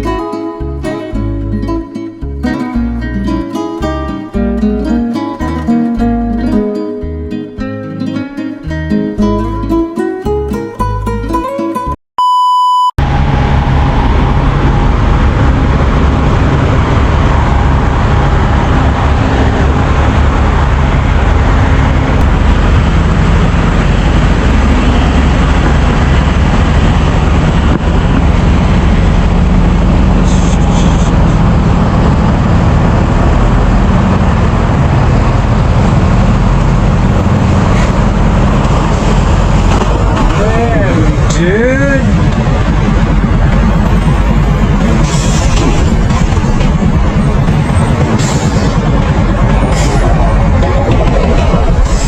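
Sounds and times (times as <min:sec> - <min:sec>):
truck engine and road noise: 0:00.0 - 0:12.0, 0:13.0 - 0:52.0
short electronic beep: 0:12.2 - 0:13.0.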